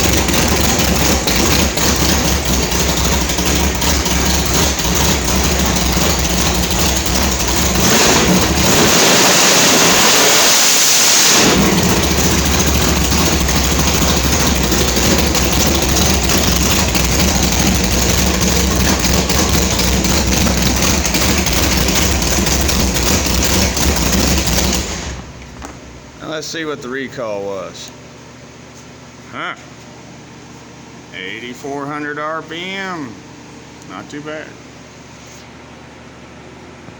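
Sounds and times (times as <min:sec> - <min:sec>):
car engine idling and revving: 0:00.0 - 0:26.3.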